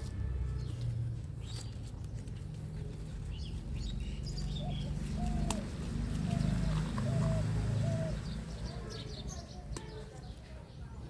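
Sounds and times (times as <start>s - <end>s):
birds chirping: 2.8s - 11.0s
low bird calls: 4.2s - 10.0s.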